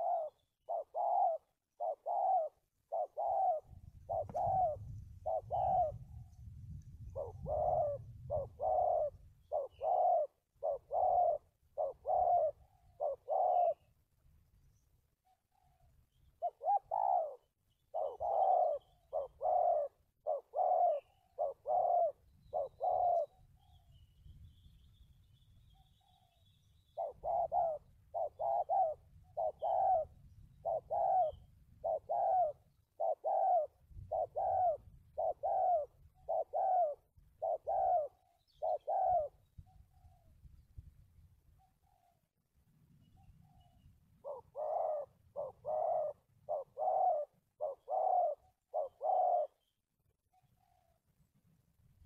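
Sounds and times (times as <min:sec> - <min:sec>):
dove cooing: 0:00.0 - 0:14.0, 0:15.2 - 0:24.0, 0:25.7 - 0:40.4, 0:43.1 - 0:49.7, 0:50.3 - 0:51.0
small birds chirping: 0:07.2 - 0:14.0, 0:14.6 - 0:40.8.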